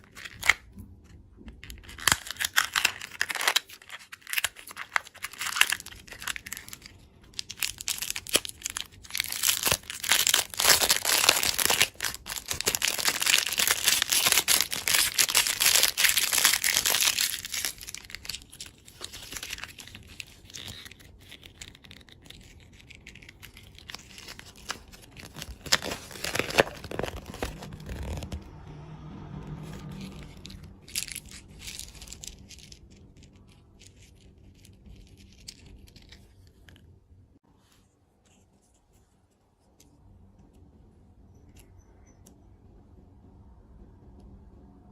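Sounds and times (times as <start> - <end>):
candy wrapper crinkling: 0.0 - 0.8, 1.5 - 28.4, 30.1 - 36.9.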